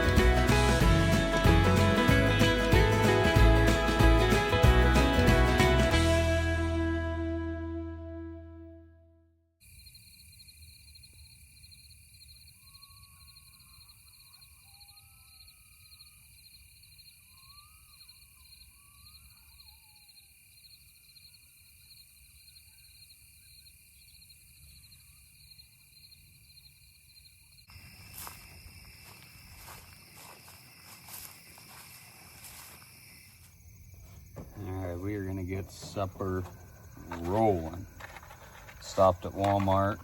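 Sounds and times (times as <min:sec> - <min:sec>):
insects chirring: 0:09.6 - 0:40.0.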